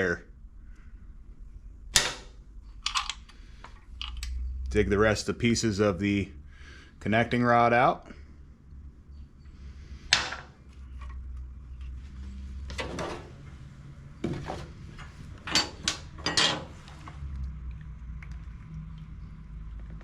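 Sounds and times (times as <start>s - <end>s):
metal parts clinking and knocking: 2.0s - 4.4s, 15.0s - 16.8s.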